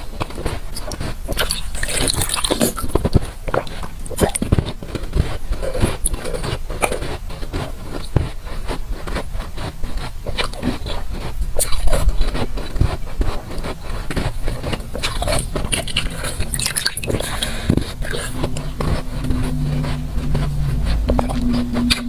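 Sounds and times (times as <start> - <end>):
chewing crunchy ice: 0.0 - 22.0.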